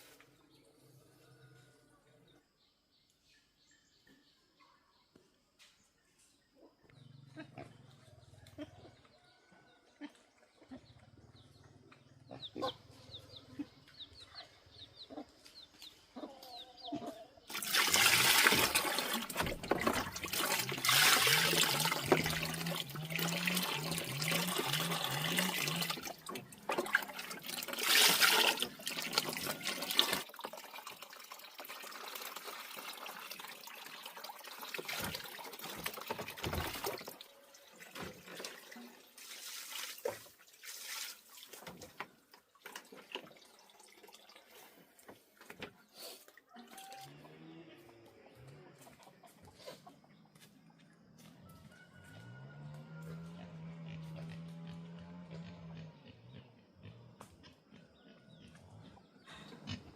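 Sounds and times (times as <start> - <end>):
water splashing and running: 17.4 - 45.6.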